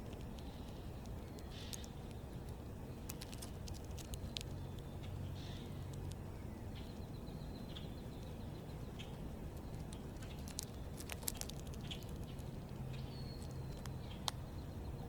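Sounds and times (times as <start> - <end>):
small birds chirping: 0.0 - 15.0
sharp ticks and taps: 9.0 - 14.4
bird trill: 11.8 - 15.0.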